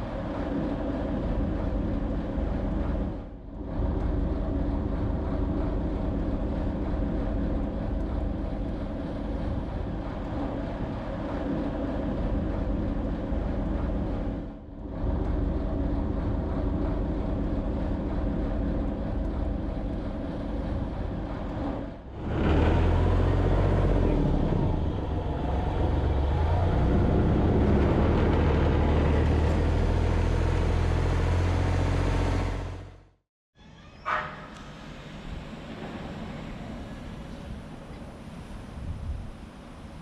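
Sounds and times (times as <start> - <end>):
boat engine humming: 0.0 - 33.1
wind on microphone: 37.4 - 39.6.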